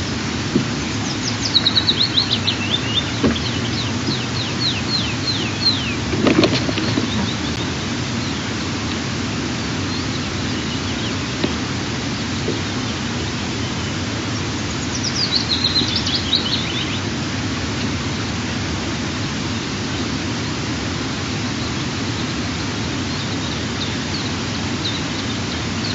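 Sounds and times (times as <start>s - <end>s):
steady rushing hiss: 0.0s - 25.9s
high bird chirps: 0.7s - 8.4s, 14.6s - 17.0s.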